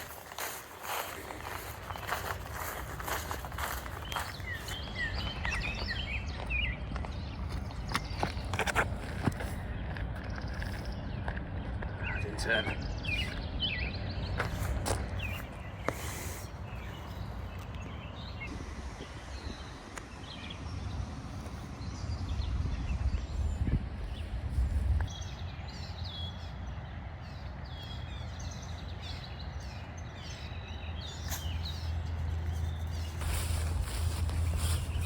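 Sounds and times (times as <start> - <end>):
faint birds chirping: 0.0 - 35.0
steady low rumble: 16.6 - 35.0.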